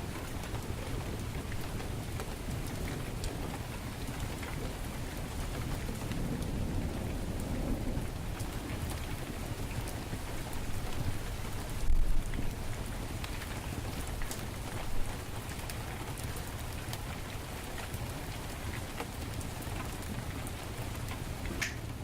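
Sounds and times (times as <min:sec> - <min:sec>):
heavy rain: 0:00.0 - 0:22.0
thunder rumble: 0:05.2 - 0:12.7
wood fire crackling: 0:08.2 - 0:22.0.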